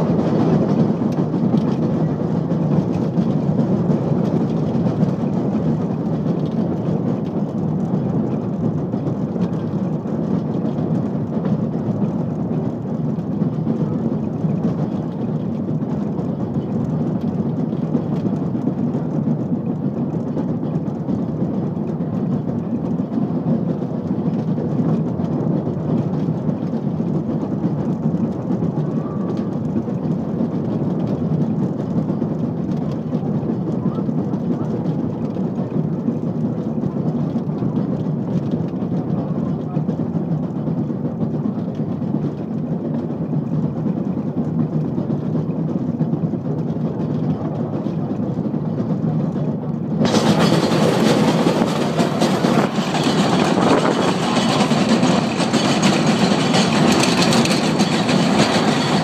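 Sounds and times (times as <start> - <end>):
electric railcar rumbling on track: 0.0 - 59.0.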